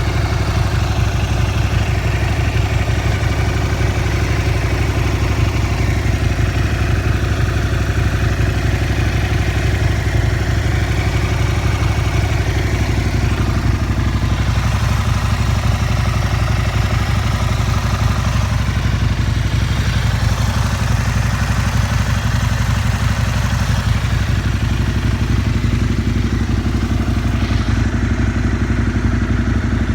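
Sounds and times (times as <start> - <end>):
motorcycle engine idling: 0.0 - 29.9.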